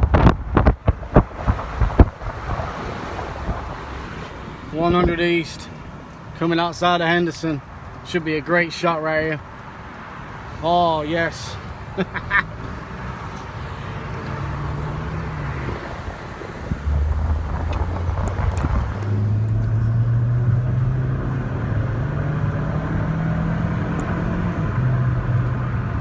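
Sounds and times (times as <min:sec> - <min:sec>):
road noise: 0:00.0 - 0:26.0
car engine accelerating: 0:11.9 - 0:26.0.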